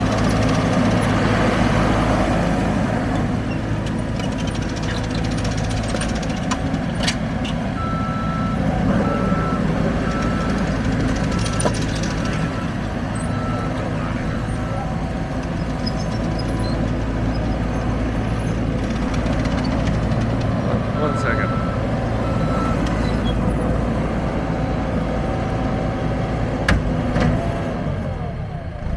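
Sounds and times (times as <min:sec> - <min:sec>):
diesel engine running: 0:00.0 - 0:28.9
reversing alarm beeps: 0:07.8 - 0:14.8, 0:21.0 - 0:23.4.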